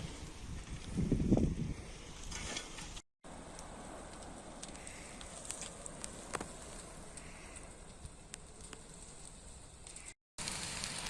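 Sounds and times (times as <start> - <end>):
fire rushing noise: 0.0 - 11.0
fire cracking and popping: 2.1 - 11.0.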